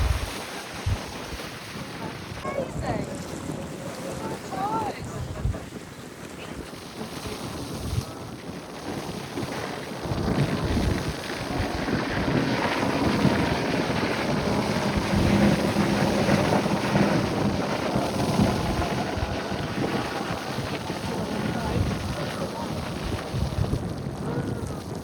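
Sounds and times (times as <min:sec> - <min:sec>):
waves rushing: 0:00.0 - 0:03.3
boat noise: 0:00.0 - 0:23.7
wind buffeting microphone: 0:00.0 - 0:25.0.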